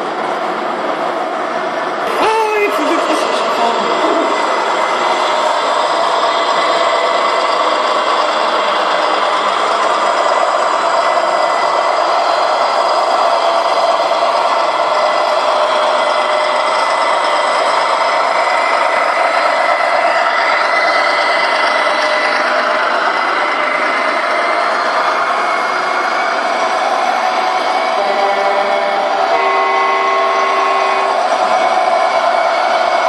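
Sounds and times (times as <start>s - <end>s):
model trucks running: 0.0s - 33.0s.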